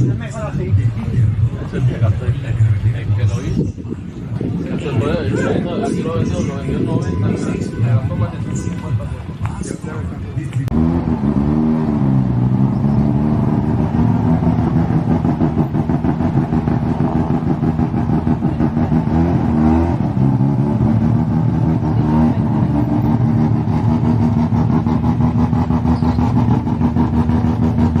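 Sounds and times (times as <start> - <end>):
car engine idling and revving: 8.3 - 28.0.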